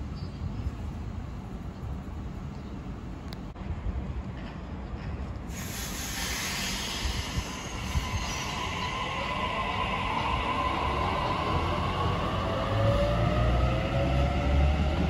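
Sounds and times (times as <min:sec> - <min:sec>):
electric train running past: 0:03.6 - 0:15.0
wheels hissing on rail: 0:05.4 - 0:15.0.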